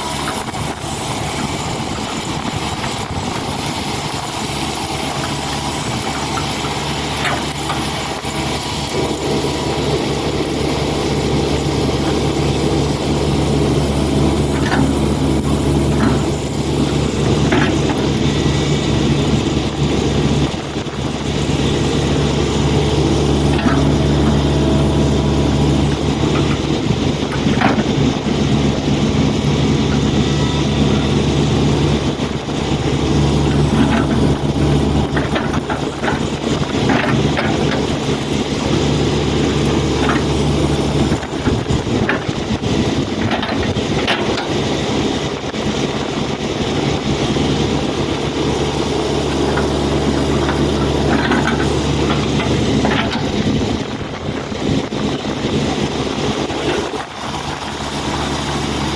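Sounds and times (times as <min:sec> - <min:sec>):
excavator diesel engine: 0:00.0 - 0:58.9
short knocks and clanks: 0:49.3 - 0:53.7.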